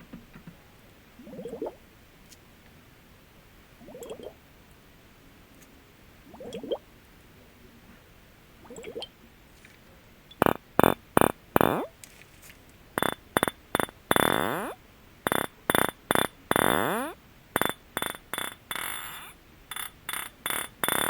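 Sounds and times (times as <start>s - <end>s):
sharp taps on glass: 13.0s - 14.3s, 17.6s - 19.0s, 19.7s - 21.0s
squeaky rubs on glass: 13.8s - 21.0s.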